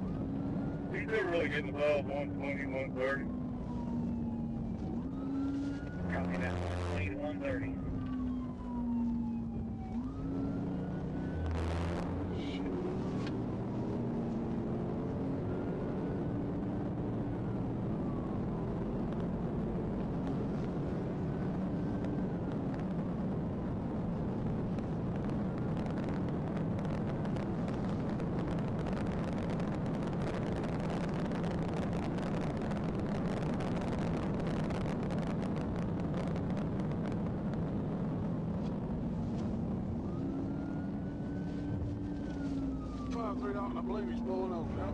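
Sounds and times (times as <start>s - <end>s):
car engine and road noise: 0.0s - 44.9s
faint siren wailing: 0.0s - 44.9s.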